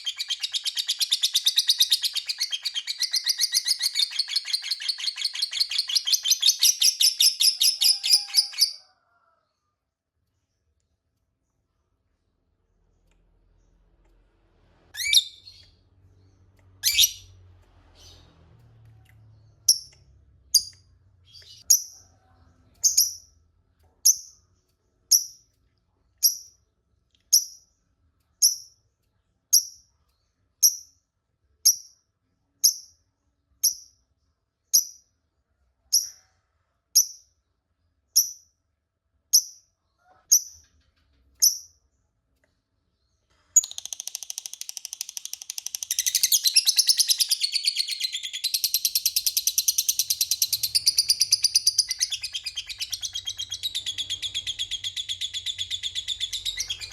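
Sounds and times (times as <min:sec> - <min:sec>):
lovebird calling: 0:00.0 - 0:08.8, 0:16.8 - 0:17.3, 0:43.6 - 0:56.9.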